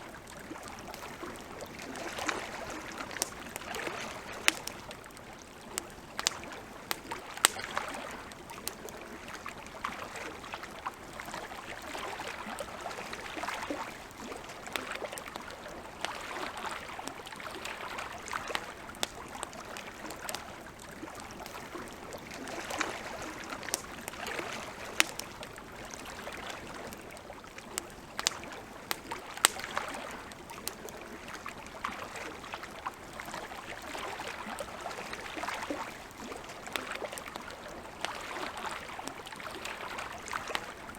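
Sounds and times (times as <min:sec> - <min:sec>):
campfire crackling and popping: 0:00.0 - 0:40.9
small waves lapping: 0:00.0 - 0:40.9.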